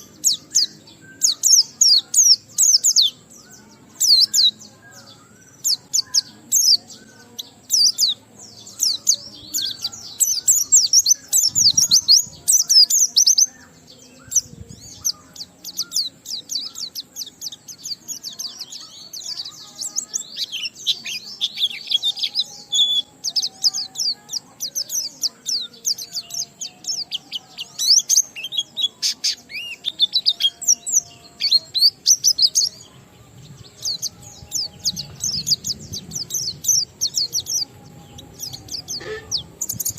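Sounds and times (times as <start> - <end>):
bird twittering chirps and trills: 0.0 - 39.9.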